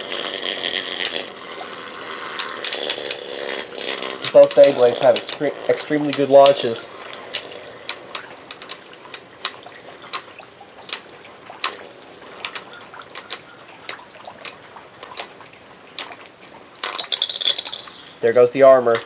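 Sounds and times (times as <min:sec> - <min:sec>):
watery hiss of spinning tops: 0:00.0 - 0:10.3
spinning tops clicking together: 0:00.0 - 0:16.2, 0:16.8 - 0:18.2.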